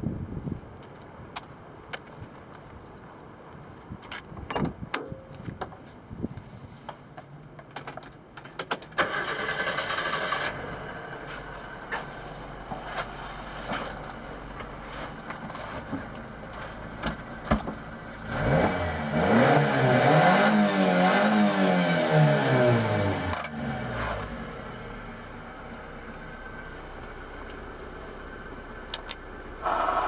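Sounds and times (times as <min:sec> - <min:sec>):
small engine revving: 0:18.2 - 0:24.8, 0:29.6 - 0:30.0.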